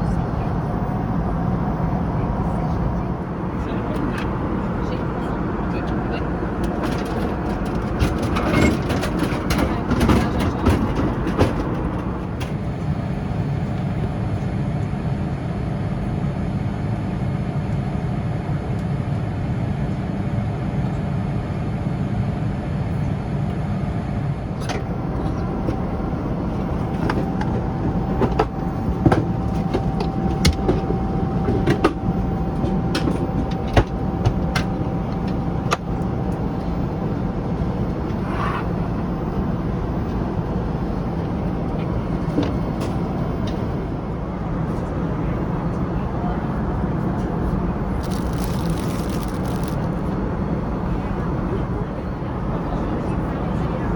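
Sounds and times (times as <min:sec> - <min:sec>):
airliner cabin roar: 0:00.0 - 0:53.9
small items clicking: 0:48.0 - 0:49.9.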